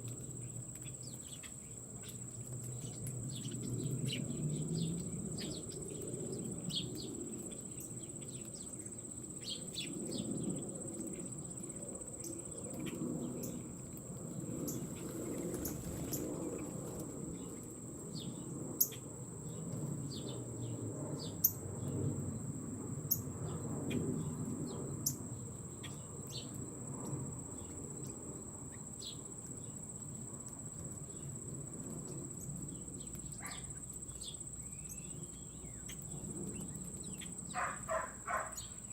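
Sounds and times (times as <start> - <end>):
high insect drone: 0.0 - 38.9
birds chirping: 33.3 - 38.9.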